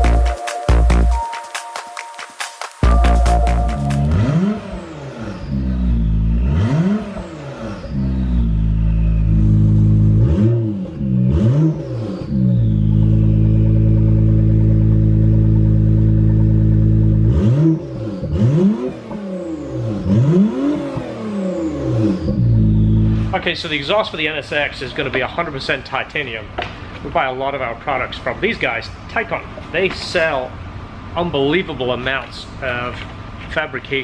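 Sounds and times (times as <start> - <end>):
car engine revving: 2.8 - 23.8.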